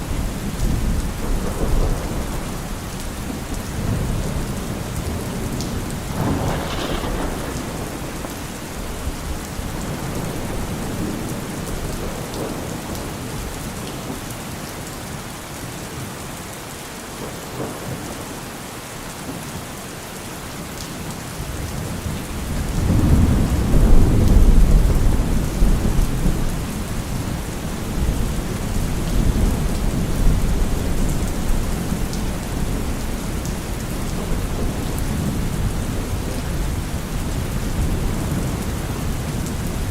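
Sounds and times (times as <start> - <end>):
rolling thunder: 0.0 - 13.5, 22.0 - 39.9
rain falling on trees: 0.0 - 39.9.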